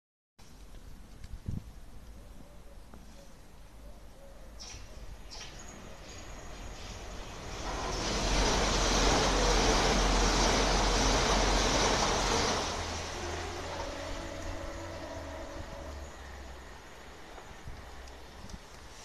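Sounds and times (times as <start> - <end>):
electric train passing at speed: 5.2 - 19.0.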